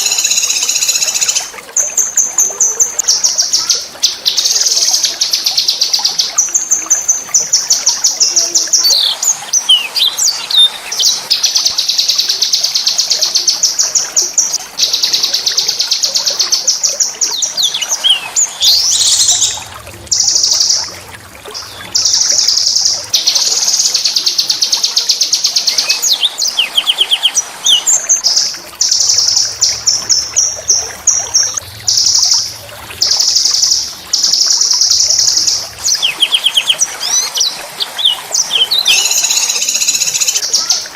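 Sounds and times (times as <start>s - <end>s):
songbird singing rolling trills: 33.1s - 40.8s.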